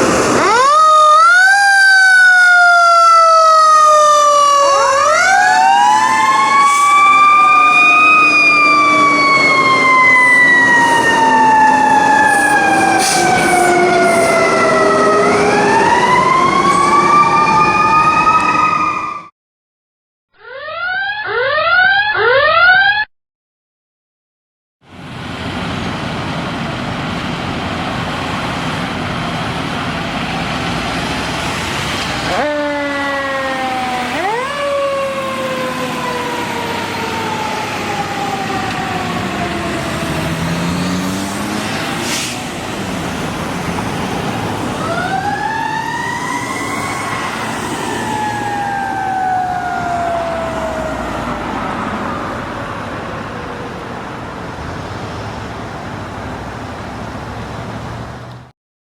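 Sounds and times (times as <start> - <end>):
engine and road noise: 0.0 - 19.3, 24.8 - 58.6
fire engine siren: 0.0 - 19.3, 20.4 - 23.1, 24.8 - 56.8.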